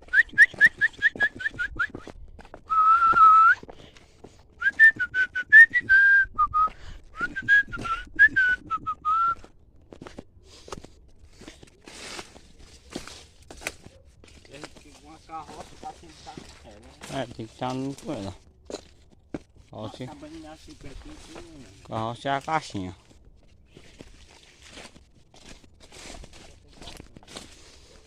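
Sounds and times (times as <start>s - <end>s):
person whistling a tune: 0.0s - 2.1s, 2.7s - 3.7s, 4.6s - 9.4s.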